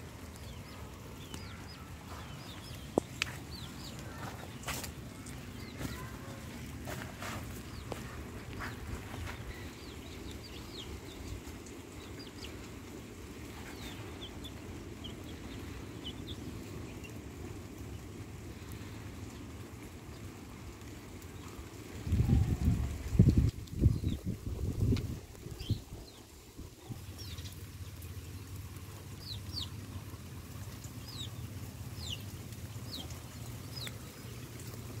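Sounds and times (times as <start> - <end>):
birds chirping: 0.0 - 35.0
small bird chirping: 0.3 - 12.7.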